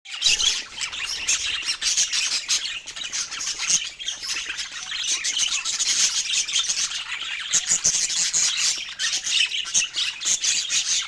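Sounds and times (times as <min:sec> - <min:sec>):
budgerigars chirping and squawking: 0:00.1 - 0:11.0.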